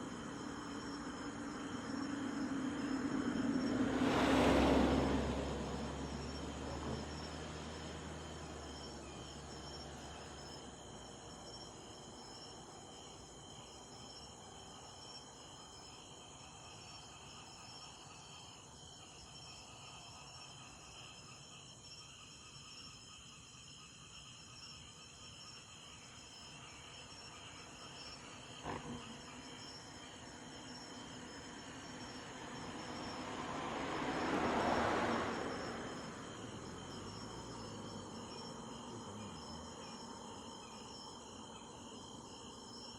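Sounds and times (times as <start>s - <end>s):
crickets chirping: 0.0s - 42.9s.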